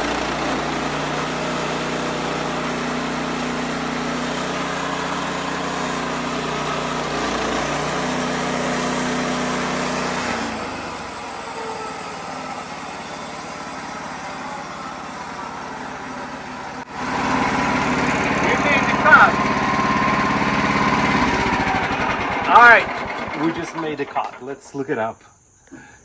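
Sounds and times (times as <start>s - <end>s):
sawmill engine running: 0.0s - 24.6s
band saw blade cutting log: 12.8s - 24.4s.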